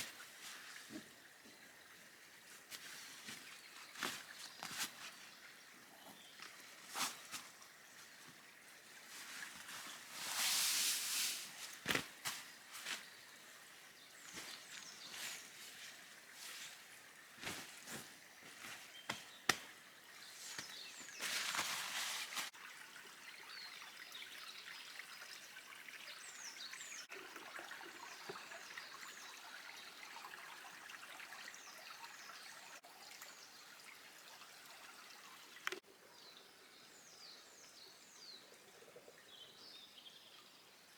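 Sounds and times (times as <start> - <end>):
small birds chirping: 0.0 - 10.4, 11.5 - 22.6
camp gear being handled: 2.5 - 13.5, 14.2 - 22.6
water pouring: 6.3 - 18.9, 27.1 - 31.4.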